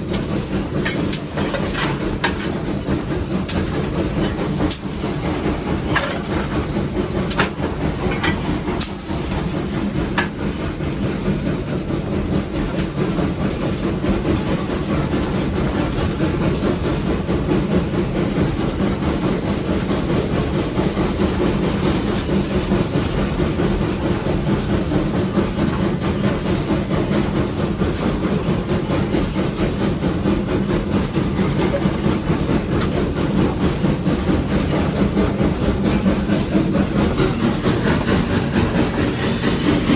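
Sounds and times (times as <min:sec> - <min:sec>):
steam locomotive working: 0:00.0 - 0:39.9.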